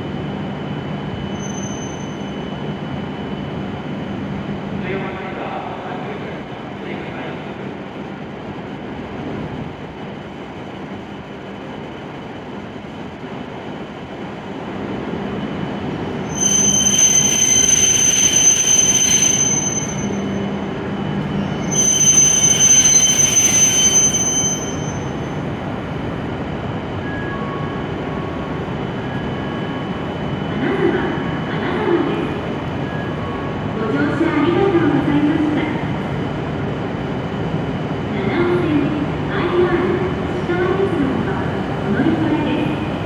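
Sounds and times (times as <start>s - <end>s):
high brake squeal: 1.1s - 2.7s, 16.1s - 25.5s.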